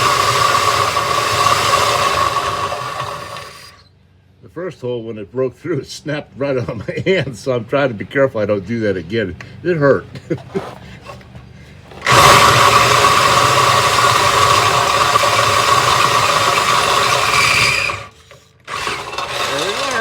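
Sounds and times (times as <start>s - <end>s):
electric drill boring: 0.0s - 3.8s, 11.9s - 20.0s.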